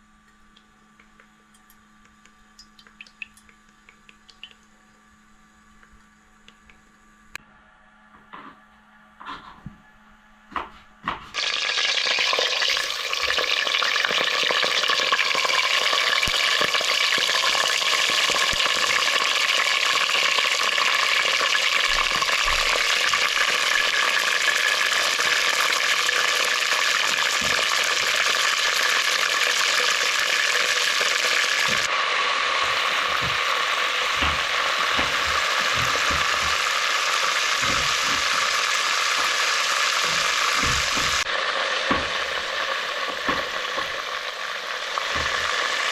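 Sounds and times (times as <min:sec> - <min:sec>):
food sizzling in hot oil: 0:11.4 - 0:45.9.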